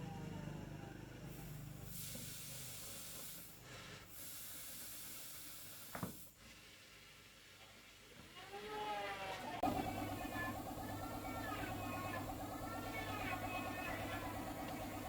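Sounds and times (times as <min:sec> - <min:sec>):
pressurised gas hissing: 0:01.3 - 0:07.6, 0:09.6 - 0:15.0.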